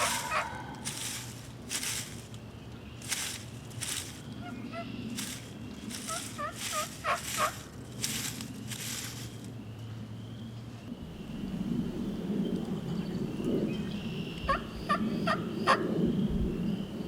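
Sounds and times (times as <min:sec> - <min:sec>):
turkey hissing bursts: 0:00.0 - 0:00.7
turkey gobbling: 0:00.0 - 0:01.3, 0:04.4 - 0:07.7, 0:14.5 - 0:15.8.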